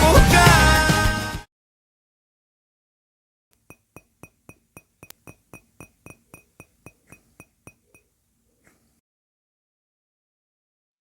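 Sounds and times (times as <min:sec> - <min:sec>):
ticking with high ping: 0:03.6 - 0:08.1.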